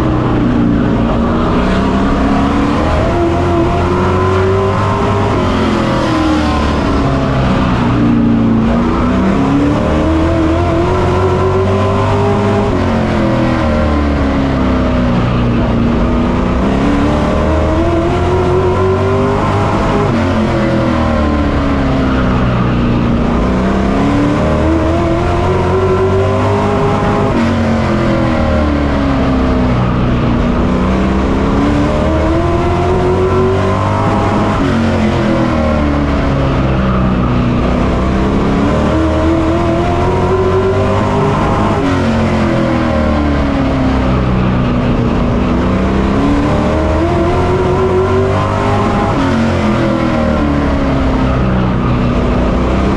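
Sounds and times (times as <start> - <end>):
race truck engine revving: 0.0 - 52.9.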